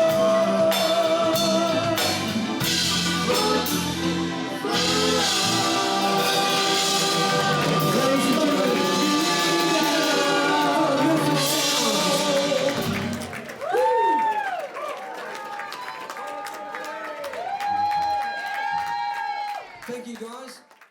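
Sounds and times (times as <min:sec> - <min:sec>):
person singing gliding notes: 0:00.0 - 0:13.3
rock guitar and drums: 0:00.0 - 0:13.5.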